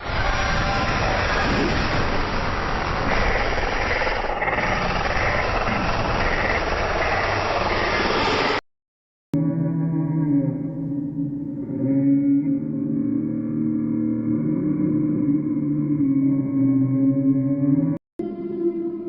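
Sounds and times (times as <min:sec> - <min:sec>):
rough rumbling noise: 0:00.0 - 0:08.6.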